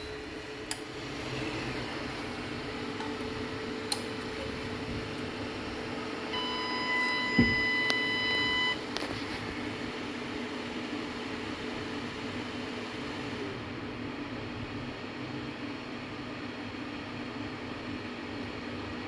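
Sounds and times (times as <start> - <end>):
electrical hum: 0.0 - 19.0
long buzzer beep: 6.3 - 8.8
thump: 7.4 - 7.6.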